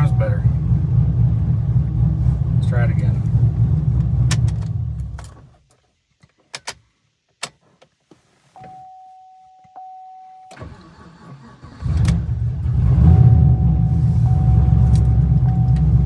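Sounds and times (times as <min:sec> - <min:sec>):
car engine running: 0:00.0 - 0:05.3, 0:11.8 - 0:16.0
car starter cranking: 0:10.5 - 0:16.0.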